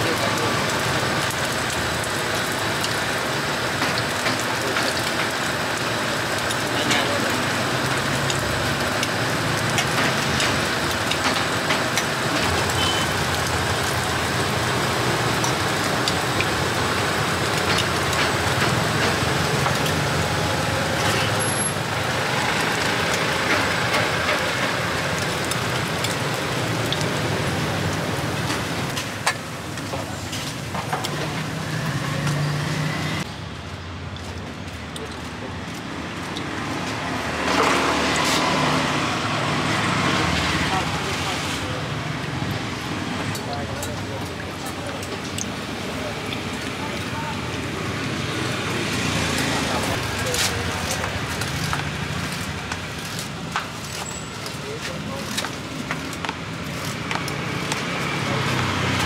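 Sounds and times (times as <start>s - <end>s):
batter sizzling on griddle: 0.0s - 32.9s, 48.8s - 59.0s
motor traffic: 0.0s - 59.0s.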